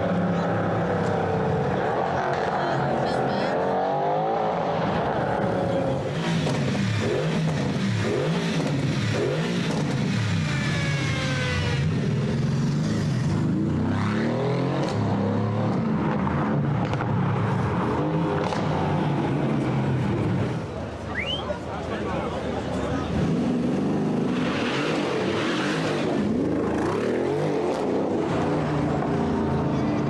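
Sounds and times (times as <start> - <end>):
car engine revving: 0.0 - 21.3.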